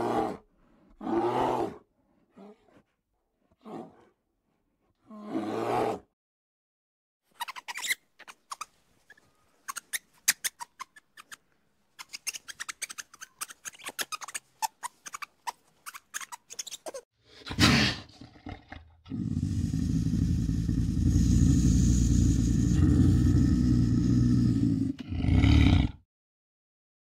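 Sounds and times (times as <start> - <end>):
low rumbling growl: 18.0 - 26.0.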